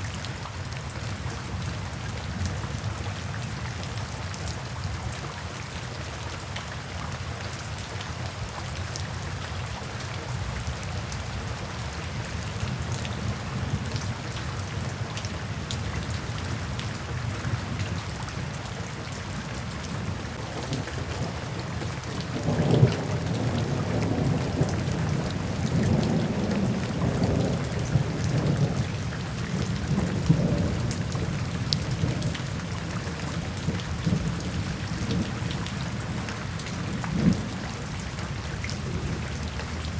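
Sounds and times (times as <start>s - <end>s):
steady rain falling: 0.0s - 39.9s
thunder rumbling: 20.0s - 28.8s.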